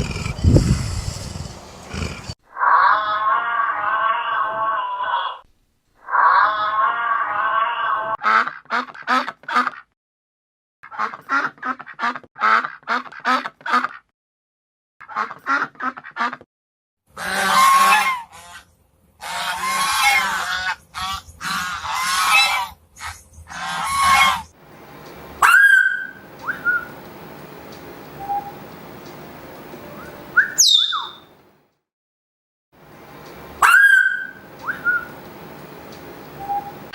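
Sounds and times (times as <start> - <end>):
birds calling: 19.7 - 31.4, 33.0 - 36.9
whistle-like bird call: 25.4 - 26.9, 30.0 - 31.3, 33.6 - 35.1.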